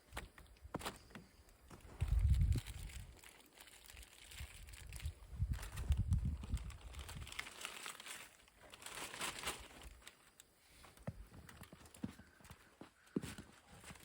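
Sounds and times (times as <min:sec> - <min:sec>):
wrapping crinkling and rustling: 0:01.7 - 0:10.6
low rumble on microphone: 0:01.8 - 0:03.1, 0:04.4 - 0:07.4.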